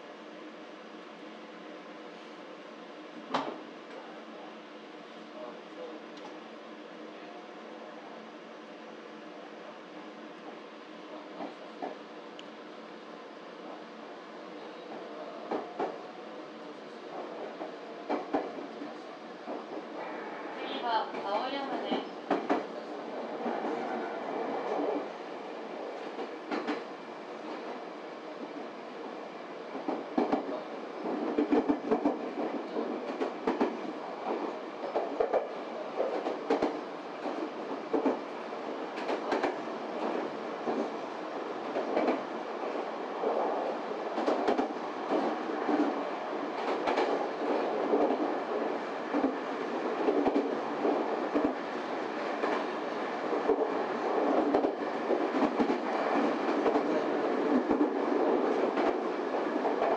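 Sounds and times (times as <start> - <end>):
train wheels rumbling on rail: 3.1 - 4.1, 10.3 - 12.6, 13.5 - 59.9
track clicks and knocks: 26.0 - 26.9.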